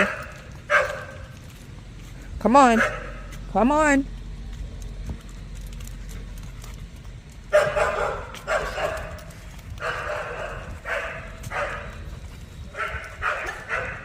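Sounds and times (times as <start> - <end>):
dog barking: 0.0 - 1.2, 2.8 - 3.2, 7.5 - 12.0, 12.7 - 14.0.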